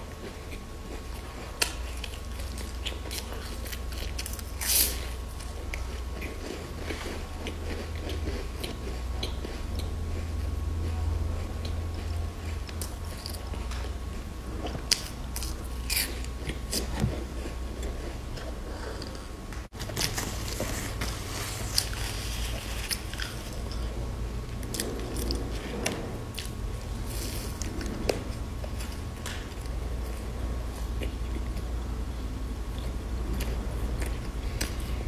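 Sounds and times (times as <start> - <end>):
low steady hum: 0.0 - 35.0
biting and crunching snack bars: 0.1 - 19.2, 21.7 - 23.9
chewing: 0.1 - 31.8, 32.7 - 35.0.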